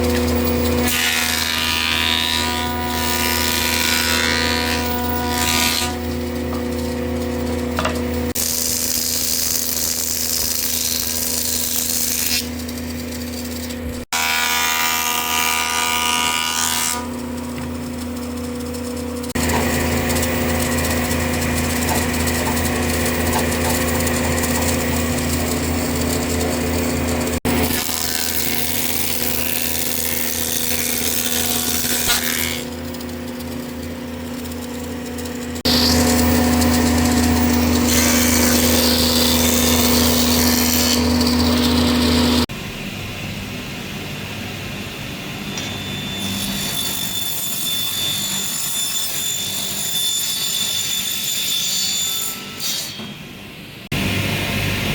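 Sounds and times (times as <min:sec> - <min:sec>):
electric power tool humming: 0:16.9 - 0:42.5.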